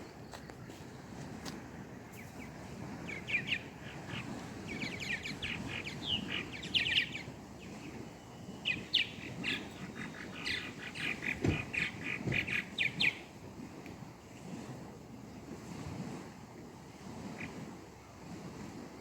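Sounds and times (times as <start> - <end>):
small birds chirping: 2.1 - 13.3.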